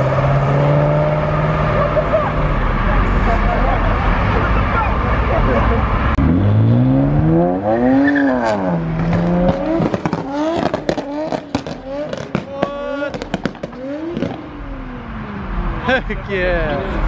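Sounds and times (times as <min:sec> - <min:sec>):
car engine revving: 0:00.0 - 0:17.0
sharp pops and crackles: 0:09.0 - 0:14.4.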